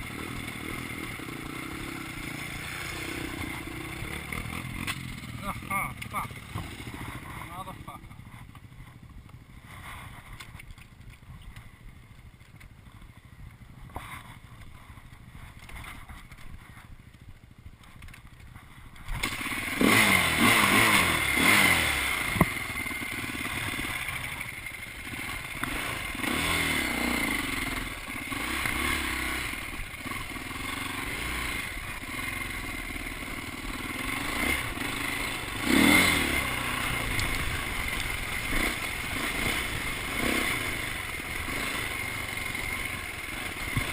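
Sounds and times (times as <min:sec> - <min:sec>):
dirt bike engine revving: 0:00.0 - 0:08.1, 0:19.1 - 0:43.9.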